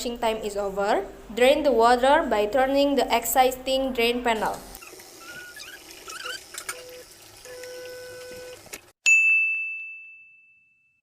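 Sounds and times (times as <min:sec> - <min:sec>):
bright bell ding: 0:09.1 - 0:11.0.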